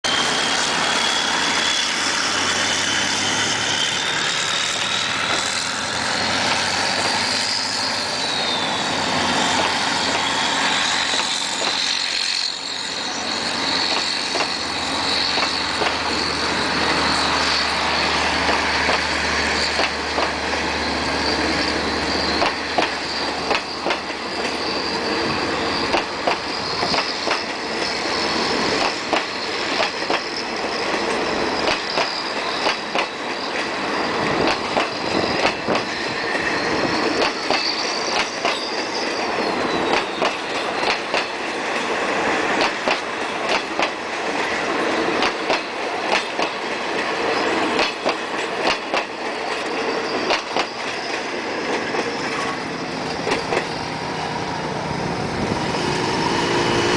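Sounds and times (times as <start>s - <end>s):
high wheel squeal: 0.0s - 56.9s
train rumble: 0.0s - 56.9s
train wheels clattering over joints: 13.4s - 54.0s.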